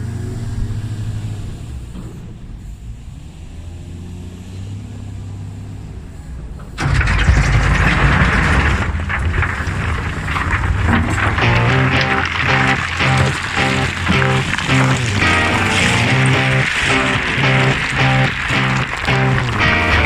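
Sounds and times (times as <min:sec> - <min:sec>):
diesel engine running: 0:00.0 - 0:20.0
loud rattling rush: 0:06.0 - 0:20.0.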